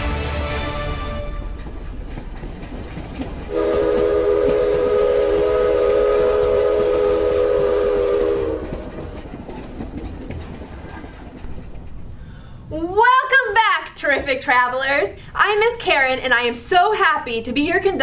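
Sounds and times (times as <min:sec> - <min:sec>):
train horn chord: 0:00.0 - 0:01.8, 0:03.5 - 0:09.2
moving train rumble: 0:00.0 - 0:18.0.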